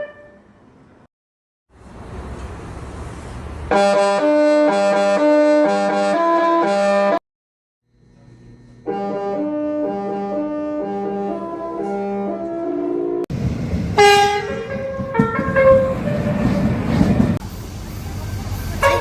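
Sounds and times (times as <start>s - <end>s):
rail and station noise: 0.0s - 1.1s, 1.8s - 4.3s, 10.0s - 19.0s
train horn: 3.7s - 7.2s, 8.9s - 13.2s, 14.0s - 16.7s, 18.8s - 19.0s.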